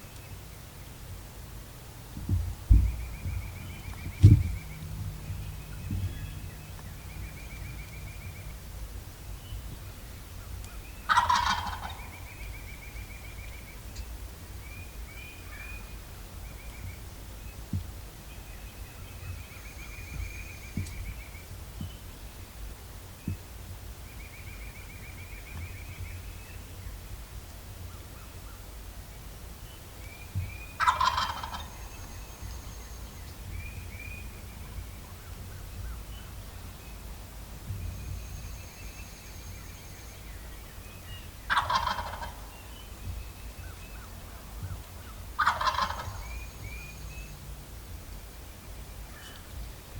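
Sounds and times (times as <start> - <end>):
turkey gobbling: 11.1 - 12.4, 30.8 - 31.8, 41.5 - 42.5, 45.0 - 46.4.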